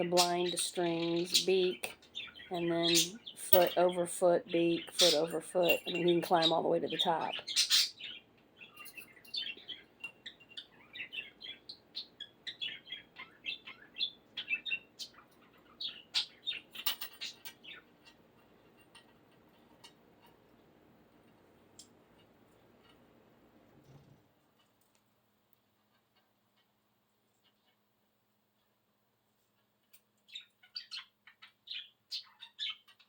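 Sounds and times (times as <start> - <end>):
budgerigar chirping: 4.7 - 17.9, 30.3 - 33.0.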